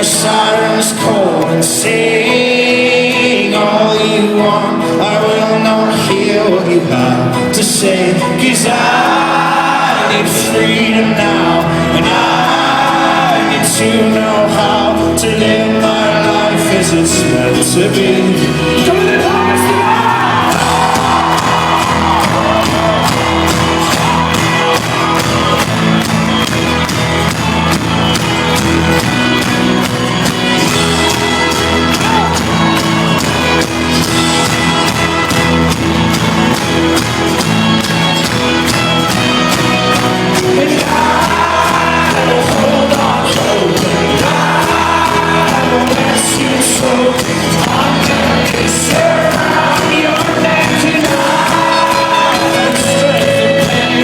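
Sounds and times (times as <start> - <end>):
voices singing and shouting: 0.0 - 26.1, 40.0 - 54.0
folk-rock band playing: 0.0 - 54.0.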